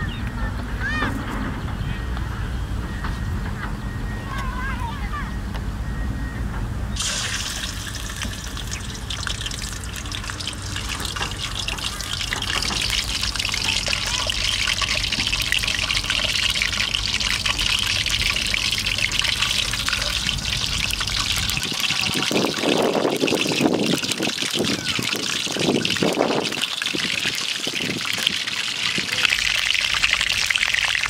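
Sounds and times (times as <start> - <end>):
low steady rumble: 0.0 - 21.8
chicken sizzling in hot oil: 7.0 - 31.0.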